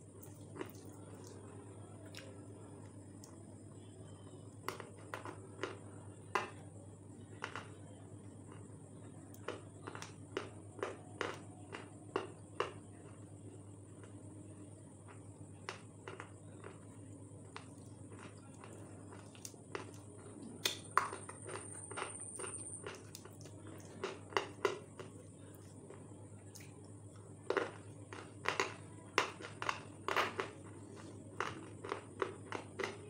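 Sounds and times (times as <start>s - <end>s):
steady background hum: 0.0s - 33.0s
crunching brittle snack: 7.3s - 33.0s.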